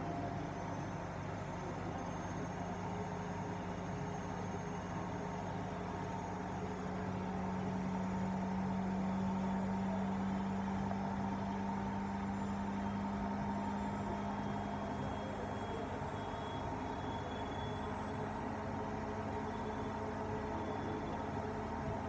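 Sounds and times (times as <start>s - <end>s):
washing machine motor hum: 5.2s - 22.0s.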